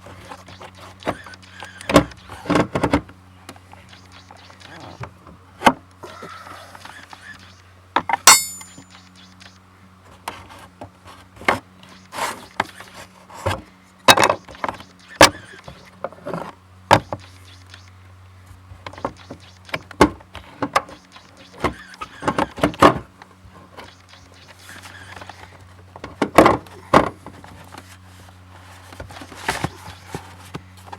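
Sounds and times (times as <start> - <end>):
steady low hum: 0.0 - 30.9
ringing metallic clink: 8.2 - 9.0
tools clicking and knocking: 8.2 - 9.0.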